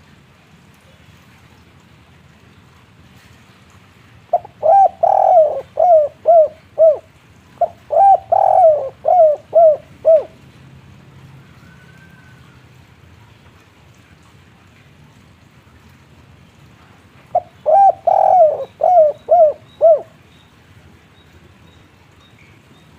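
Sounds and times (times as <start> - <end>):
dove cooing: 4.3 - 10.4, 17.3 - 20.2.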